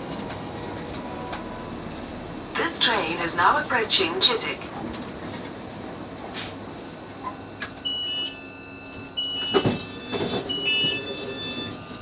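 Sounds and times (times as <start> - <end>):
train carriage background noise: 0.0 - 12.0
electronic door beeps: 7.2 - 12.0.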